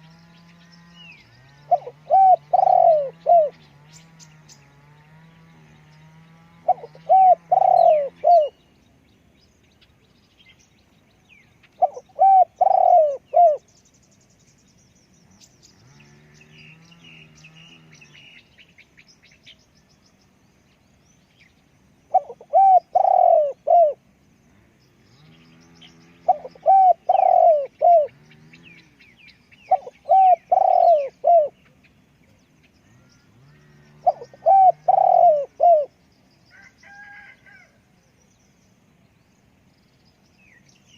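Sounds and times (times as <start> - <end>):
dove cooing: 1.1 - 3.7, 6.5 - 8.6, 11.8 - 13.7, 22.1 - 24.0, 26.0 - 28.9, 29.7 - 31.6, 33.3 - 36.0.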